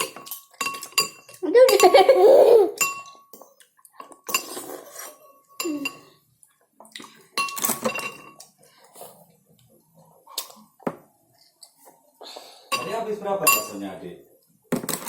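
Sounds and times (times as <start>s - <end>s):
spoon clinking in a bowl: 2.8s - 3.5s, 12.7s - 13.8s.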